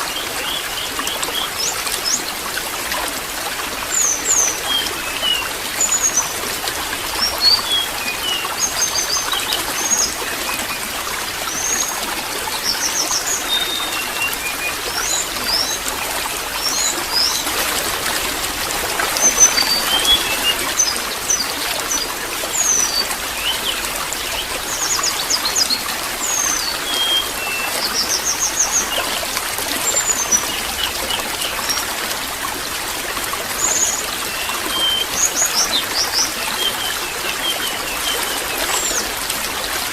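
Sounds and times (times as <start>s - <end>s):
water trickling: 0.1s - 39.9s
small birds chirping: 11.5s - 29.2s.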